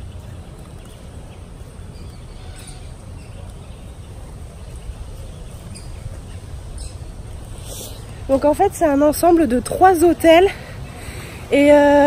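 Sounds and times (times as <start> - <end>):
faint bird calls: 0.0 - 8.2
steady low rumble: 0.0 - 12.0.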